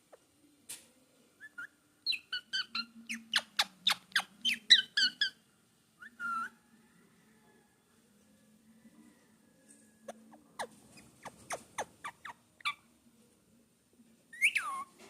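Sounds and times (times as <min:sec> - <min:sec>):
baby parrot chirping: 0:01.4 - 0:05.4, 0:06.1 - 0:06.5, 0:10.6 - 0:12.8, 0:14.4 - 0:14.9.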